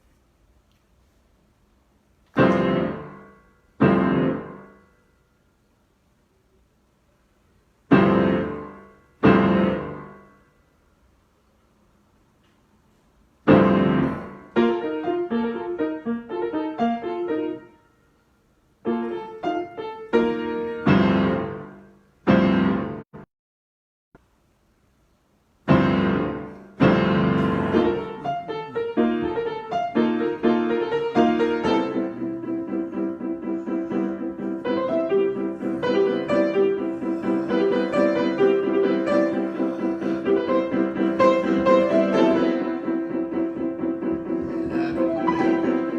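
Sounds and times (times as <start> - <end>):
solo piano playing: 2.3 - 5.0, 7.9 - 10.4, 13.5 - 17.9, 18.8 - 23.1, 25.7 - 45.9.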